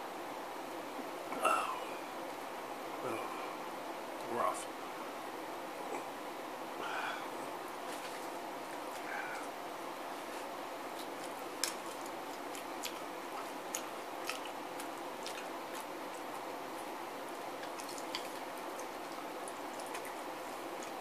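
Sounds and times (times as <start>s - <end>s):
chewing chicken wings: 10.3s - 21.0s.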